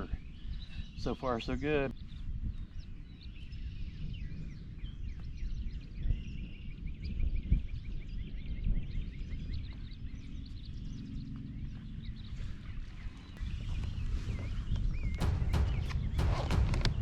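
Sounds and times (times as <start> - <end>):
small birds chirping: 0.0 - 14.0
steady low rumble: 15.1 - 17.0.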